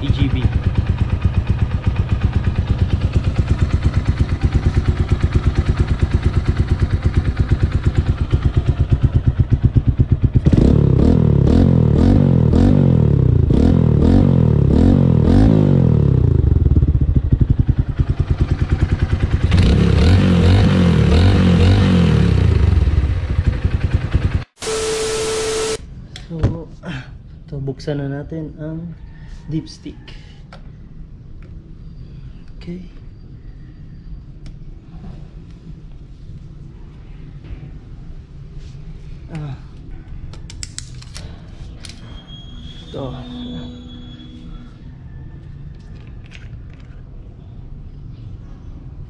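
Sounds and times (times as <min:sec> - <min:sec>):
motorcycle engine idling and revving: 0:00.0 - 0:25.8.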